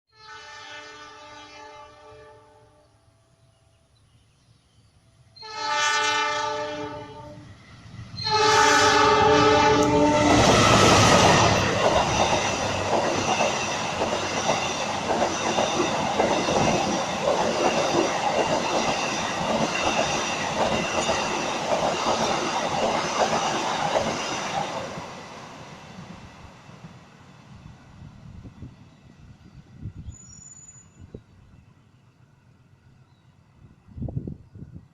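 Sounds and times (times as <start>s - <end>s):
train horn blasts: 0.1s - 3.0s, 5.4s - 7.5s, 8.2s - 11.6s.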